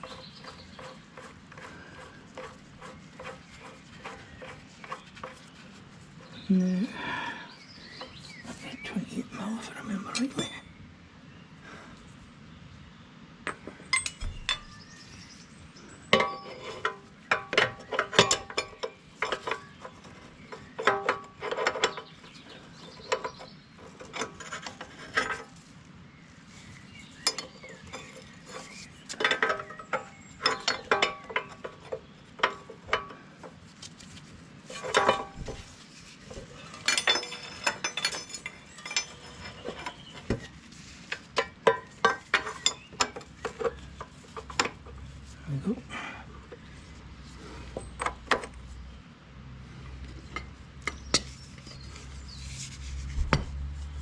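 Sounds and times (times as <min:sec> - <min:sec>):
spanners clinking against metal: 0:09.9 - 0:10.7, 0:13.9 - 0:14.8, 0:16.1 - 0:19.7, 0:27.2 - 0:33.2, 0:34.7 - 0:35.7, 0:36.4 - 0:40.0, 0:41.3 - 0:44.8.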